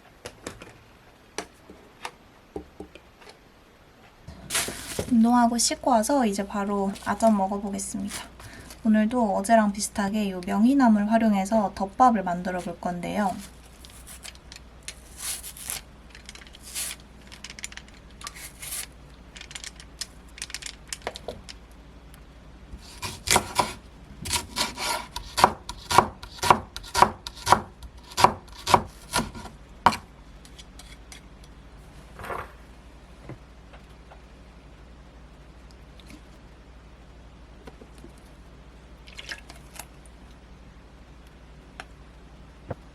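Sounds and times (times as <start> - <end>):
knife chopping on wooden board: 22.8 - 30.0.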